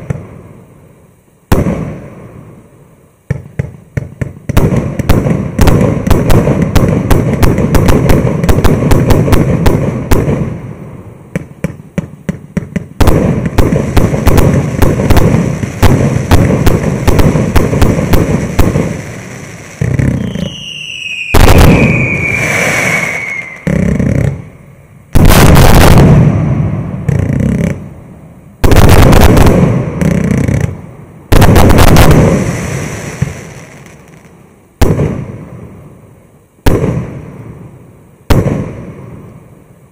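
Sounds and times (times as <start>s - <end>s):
heavy firework bursts crackling: 3.3s - 28.0s, 28.6s - 35.6s
firework cake volleys: 13.6s - 24.4s
falling firework whistle: 18.5s - 24.4s.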